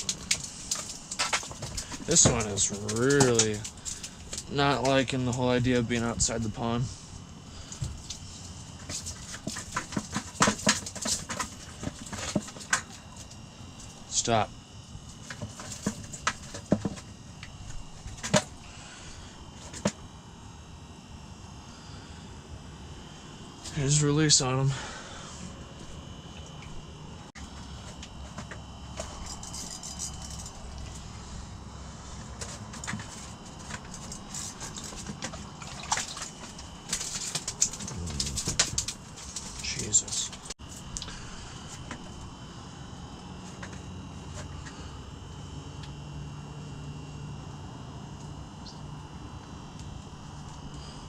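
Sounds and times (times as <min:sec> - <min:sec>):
water splashing and dripping: 0:35.6 - 0:36.5.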